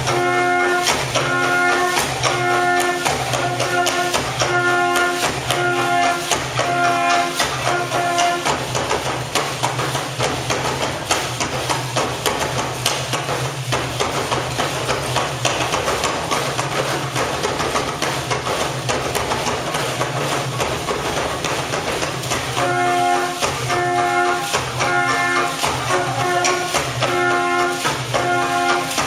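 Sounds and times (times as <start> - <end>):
percussive tapping and knocking: 0.0 - 29.0
pitched music: 15.9 - 29.0.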